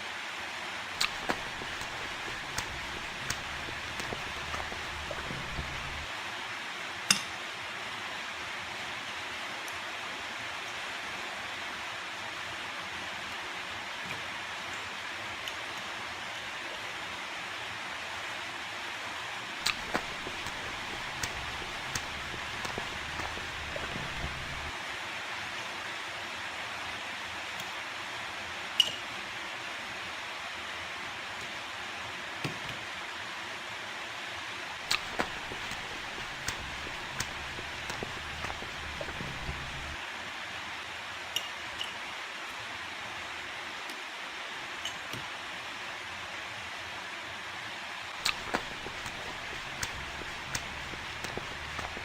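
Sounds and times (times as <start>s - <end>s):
steady hiss: 0.0s - 12.8s, 17.4s - 28.6s, 33.0s - 41.2s, 42.0s - 52.0s
eating clicks and smacks: 1.0s - 6.1s, 19.6s - 24.8s, 34.9s - 40.0s, 48.2s - 52.0s.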